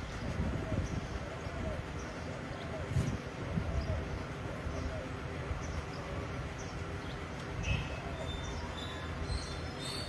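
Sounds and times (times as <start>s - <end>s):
small birds chirping: 0.0s - 10.0s
dove cooing: 0.2s - 6.2s.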